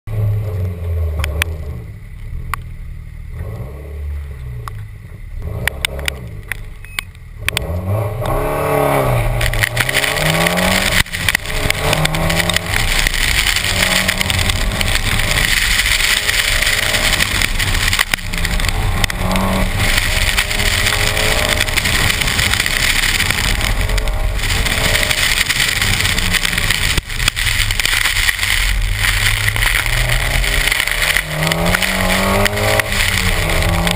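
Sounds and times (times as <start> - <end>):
car engine revving: 0.1 - 33.9
tyres spraying water: 9.1 - 33.9.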